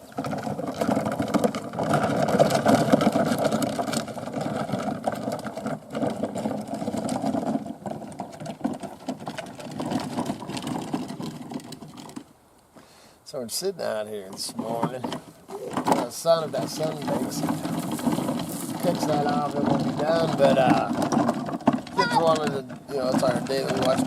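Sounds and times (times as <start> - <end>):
small motor rattling: 0.0 - 12.3, 14.4 - 24.0.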